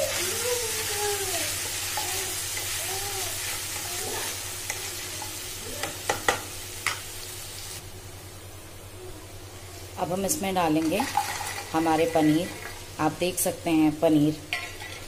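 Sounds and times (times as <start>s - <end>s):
sauce sizzling in oil: 0.0s - 7.9s, 9.7s - 15.0s.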